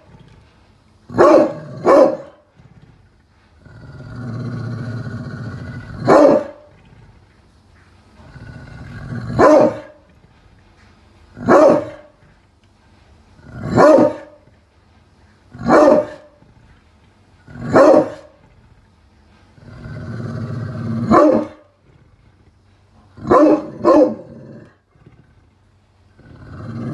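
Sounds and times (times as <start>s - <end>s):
dog growling: 0.0s - 12.5s, 13.4s - 26.9s
dog barking: 1.2s - 2.4s, 6.0s - 6.6s, 9.4s - 10.0s, 11.4s - 12.1s, 13.7s - 14.4s, 15.6s - 16.3s, 17.7s - 18.3s, 21.1s - 21.6s, 23.2s - 24.3s.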